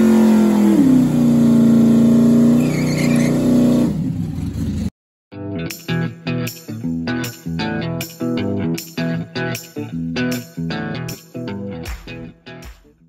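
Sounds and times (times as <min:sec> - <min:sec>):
engine running at fast idle: 0:00.0 - 0:04.9.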